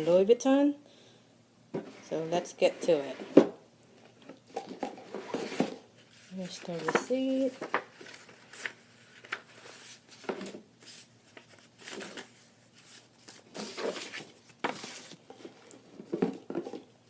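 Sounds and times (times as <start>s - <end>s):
paper and packaging rustling: 4.0s - 16.9s.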